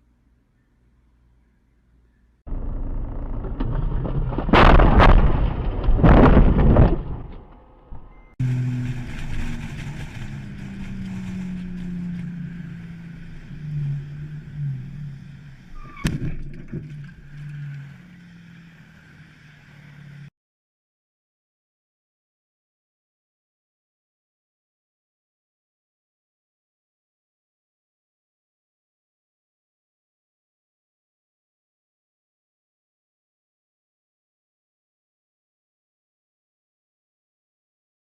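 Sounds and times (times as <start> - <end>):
road noise: 2.4 - 20.3
vehicle engine running: 2.5 - 4.5, 7.0 - 20.3
loud crashing impacts: 3.5 - 11.0.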